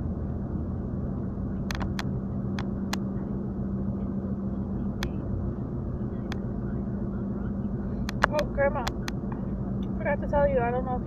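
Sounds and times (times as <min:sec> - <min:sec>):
car road and engine rumble: 0:00.0 - 0:11.0
sharp clicks: 0:08.0 - 0:09.2.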